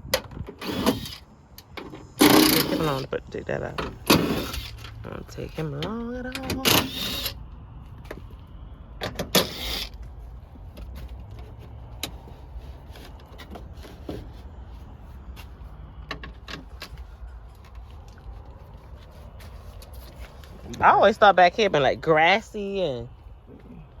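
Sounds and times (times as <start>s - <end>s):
steady low rumble: 0.0s - 24.0s
hand tools clicking and knocking: 0.1s - 3.1s, 3.8s - 5.0s, 5.8s - 7.4s
scraping rustle: 9.5s - 21.0s.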